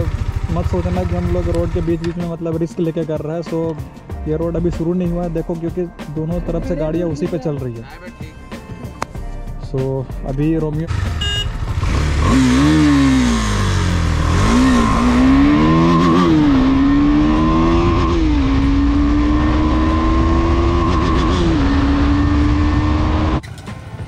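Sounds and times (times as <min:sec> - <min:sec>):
motorcycle engine accelerating: 0:00.0 - 0:02.2, 0:10.9 - 0:24.0.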